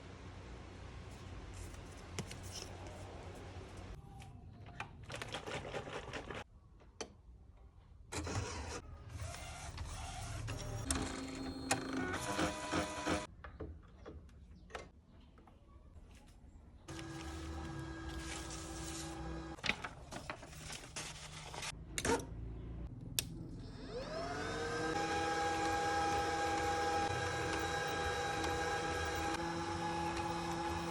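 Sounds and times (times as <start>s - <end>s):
inkjet printer running: 9.2s - 13.3s, 16.9s - 19.6s, 24.0s - 30.9s
motor whine: 16.9s - 19.6s, 23.6s - 30.9s.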